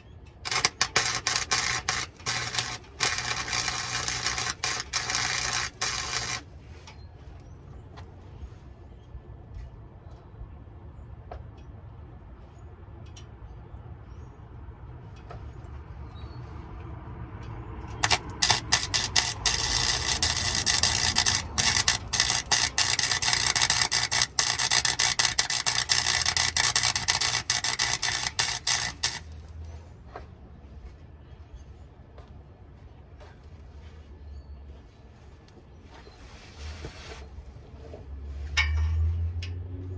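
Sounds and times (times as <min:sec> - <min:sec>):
low hum: 0:00.0 - 0:07.6, 0:17.8 - 0:31.8
arc welder crackling and sizzling: 0:00.4 - 0:06.5, 0:17.9 - 0:29.5.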